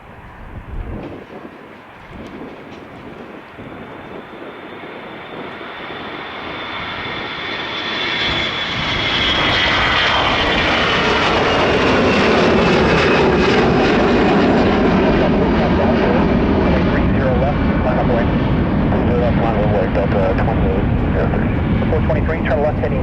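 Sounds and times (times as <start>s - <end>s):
jet airliner engines passing: 0.0s - 23.0s.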